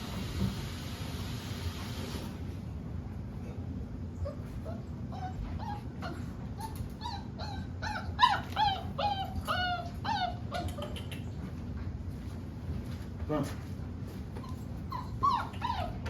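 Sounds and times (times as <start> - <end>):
dogs whining and yipping: 4.2 - 11.1, 14.3 - 16.0.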